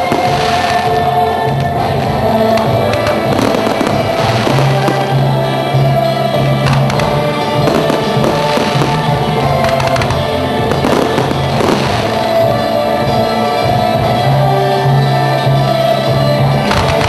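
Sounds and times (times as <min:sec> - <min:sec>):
fireworks bangs and crackling: 0:00.0 - 0:17.0
music with long held notes: 0:00.0 - 0:17.0.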